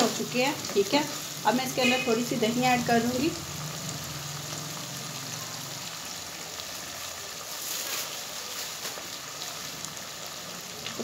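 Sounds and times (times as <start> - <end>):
meat sizzling in a pot: 0.0 - 11.0.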